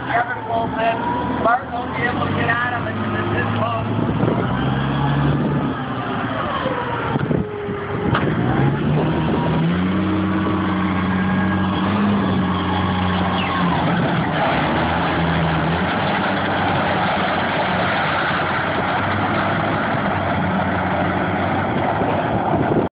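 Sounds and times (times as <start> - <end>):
forklift engine running: 0.0 - 22.9.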